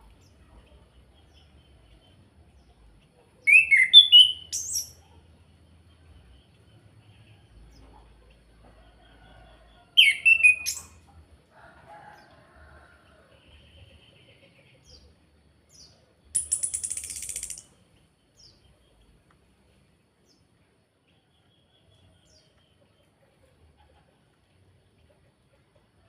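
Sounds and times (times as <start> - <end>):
dry rattling bird trill: 16.4 - 17.7.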